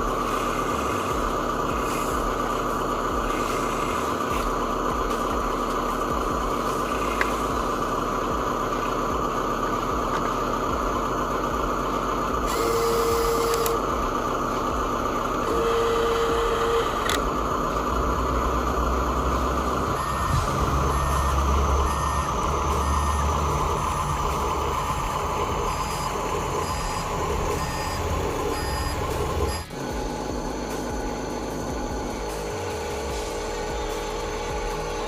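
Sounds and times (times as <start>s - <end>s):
electric motor and gearbox whining: 0.0s - 35.0s
long electronic beeps: 12.4s - 13.9s, 14.8s - 17.2s, 19.8s - 32.7s.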